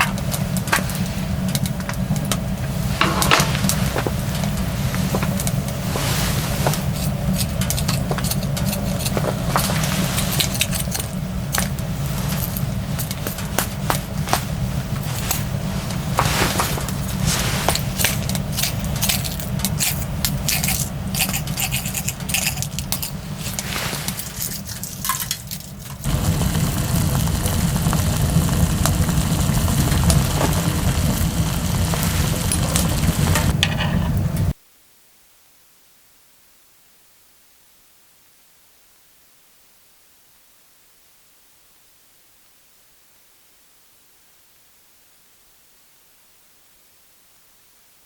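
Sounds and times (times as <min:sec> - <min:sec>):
small items clicking and scraping: 0:00.7 - 0:26.2
low rumble: 0:22.0 - 0:34.5.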